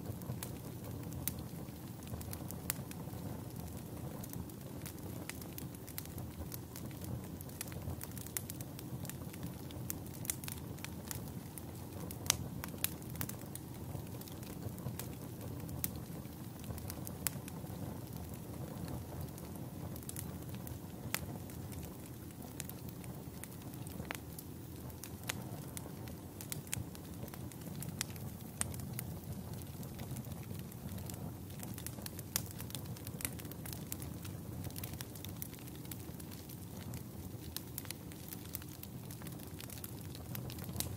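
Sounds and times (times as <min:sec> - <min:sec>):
burning wood crackling and popping: 0:00.0 - 0:40.9
campfire flames rushing: 0:00.0 - 0:40.9.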